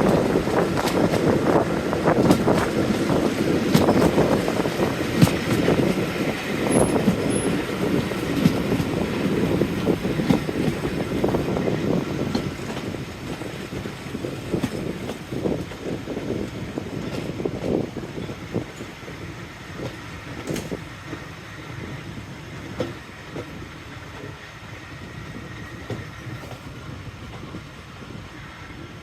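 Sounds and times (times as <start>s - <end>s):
wheels clattering over rails: 0.0s - 19.0s
diesel train running: 0.0s - 29.0s.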